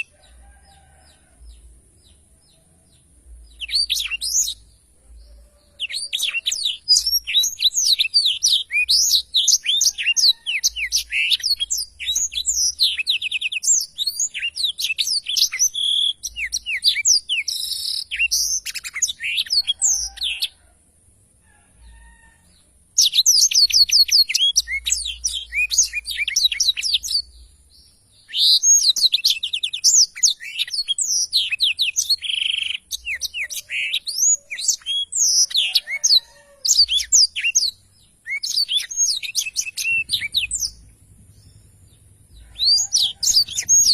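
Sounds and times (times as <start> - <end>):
canary singing: 0.0 - 20.7, 21.9 - 43.9.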